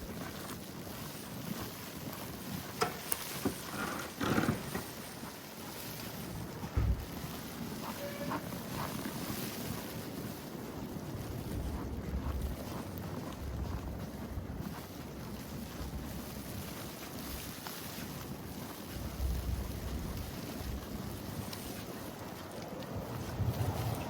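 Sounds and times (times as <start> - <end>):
outdoor street noise: 0.0 - 24.0
wind buffeting microphone: 0.0 - 24.0
short low thump: 6.7 - 7.1.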